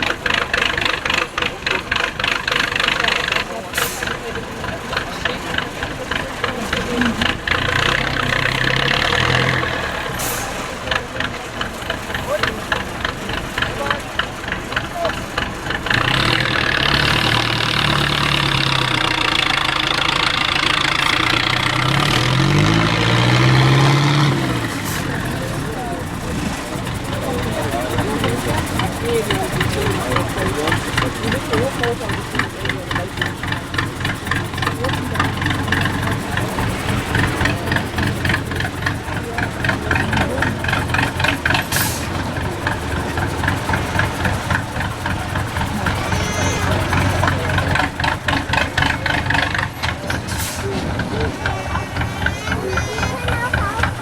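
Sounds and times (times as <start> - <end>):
diesel truck engine revving: 0.0 - 54.0.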